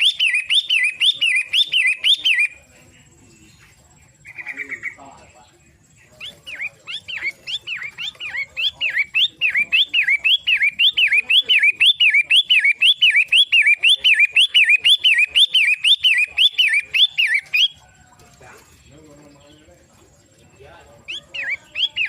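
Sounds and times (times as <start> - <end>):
shrike calling repeated phrases: 0.0 - 3.4, 4.2 - 17.8, 21.0 - 22.0.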